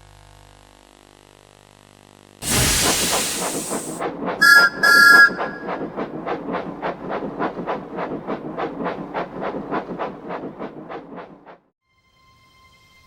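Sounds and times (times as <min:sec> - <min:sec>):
steam whistle peeps: 0:02.4 - 0:05.8
steam locomotive releasing steam: 0:02.4 - 0:06.0
locomotive puffing: 0:02.4 - 0:11.6.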